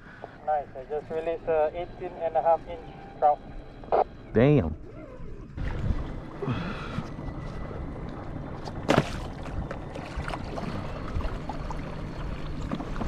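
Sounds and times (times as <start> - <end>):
water against kayak hull: 7.5 - 13.0.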